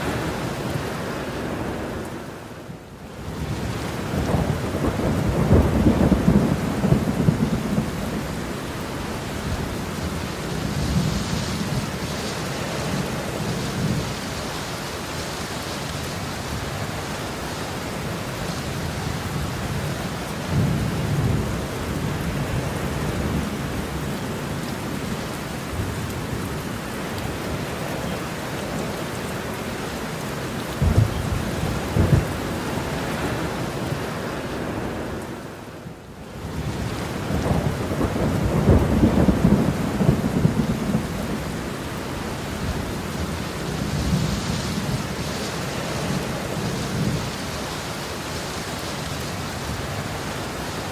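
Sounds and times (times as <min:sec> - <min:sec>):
heavy rain: 0:00.0 - 0:50.9
thunder rumbling: 0:03.4 - 0:12.1, 0:30.7 - 0:34.1, 0:36.4 - 0:45.4
thunder cracks: 0:30.8 - 0:32.5.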